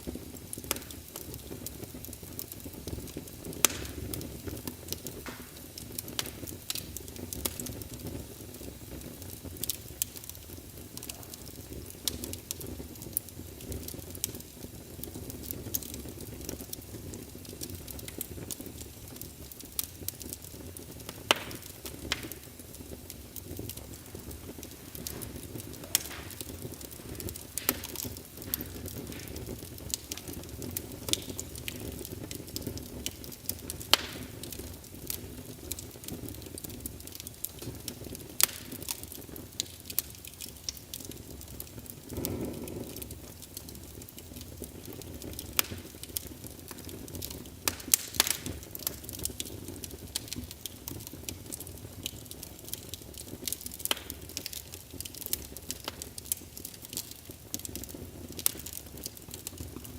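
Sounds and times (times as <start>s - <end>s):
logs crackling in fireplace: 0.0s - 59.9s.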